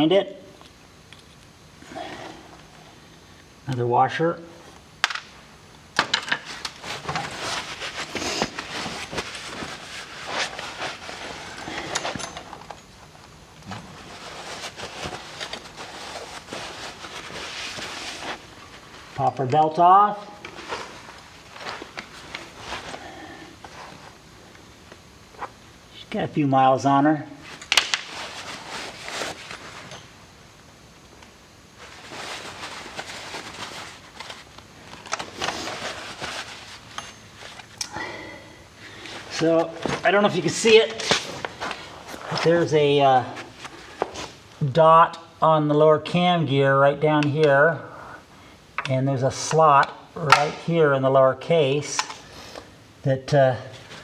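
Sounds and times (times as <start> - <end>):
rustling and scraping: 5.0 - 25.6, 27.4 - 30.2, 31.7 - 37.8, 38.8 - 44.6
metal parts and tools clinking: 11.6 - 13.1, 36.9 - 37.6.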